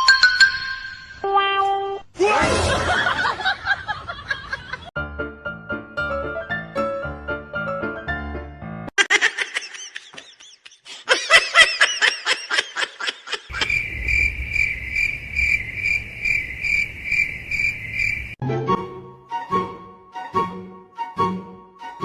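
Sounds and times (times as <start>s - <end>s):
cricket chirping: 13.5s - 18.4s
rapid high-pitched calls: 13.5s - 18.4s.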